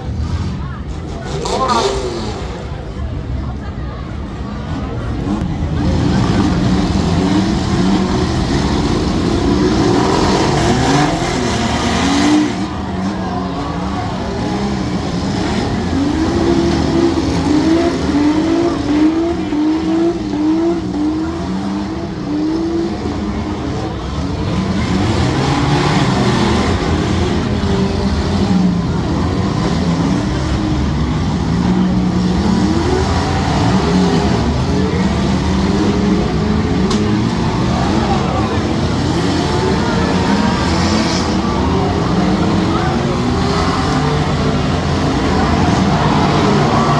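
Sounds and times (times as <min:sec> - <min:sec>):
car engines revving hard: 0:00.0 - 0:46.9.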